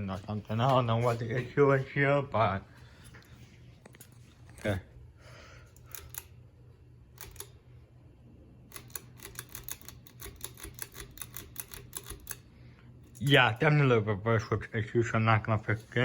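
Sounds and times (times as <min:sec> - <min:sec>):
low steady hum: 0:00.0 - 0:16.0
fan switch clicking: 0:07.1 - 0:07.6.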